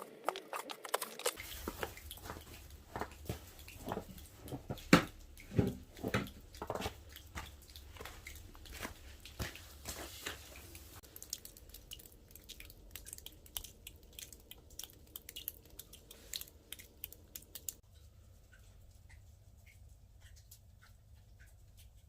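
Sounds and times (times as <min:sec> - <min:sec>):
wood fire crackling: 0:00.0 - 0:17.8.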